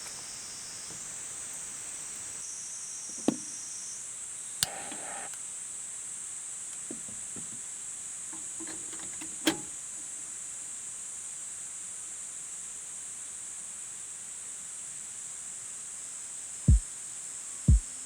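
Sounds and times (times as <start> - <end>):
insects trilling: 0.0 - 5.4
single click: 4.6 - 5.4.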